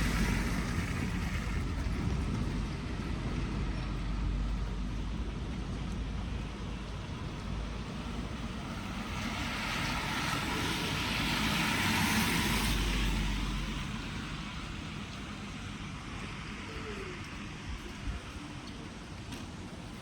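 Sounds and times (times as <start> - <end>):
tyre hiss on wet road: 0.0 - 1.6, 8.1 - 15.4
car engine rumble: 0.0 - 19.9.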